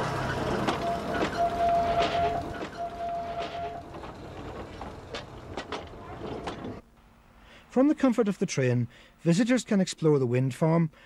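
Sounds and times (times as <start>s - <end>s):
steady high tone: 0.0s - 3.9s
train engine hum: 0.0s - 6.8s
train running gear clicks: 0.0s - 6.8s.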